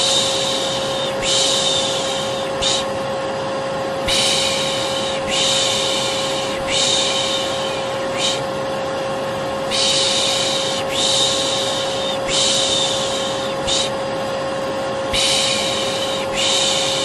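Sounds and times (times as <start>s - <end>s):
person shushing: 0.0s - 3.0s, 4.0s - 8.5s, 9.7s - 14.0s, 15.1s - 17.0s
vacuum cleaner humming: 0.0s - 17.0s.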